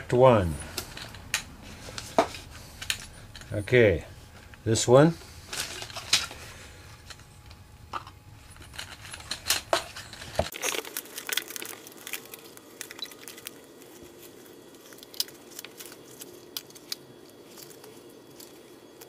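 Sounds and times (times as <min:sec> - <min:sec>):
small parts clicking and rattling: 0:07.0 - 0:19.0.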